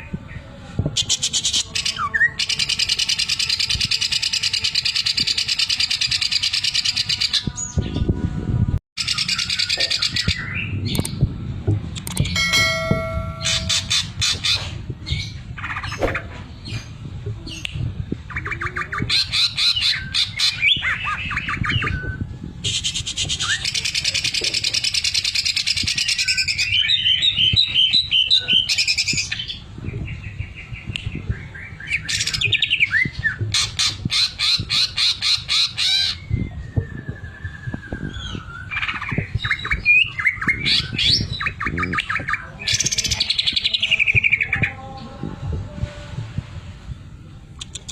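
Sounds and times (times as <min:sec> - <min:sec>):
bird singing rattling trills: 0:12.1 - 0:14.5.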